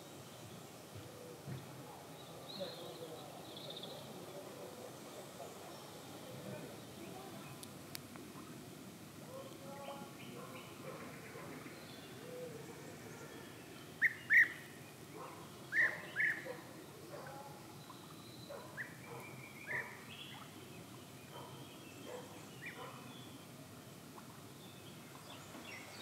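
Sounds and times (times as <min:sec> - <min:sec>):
birds chirping: 0:09.3 - 0:26.0.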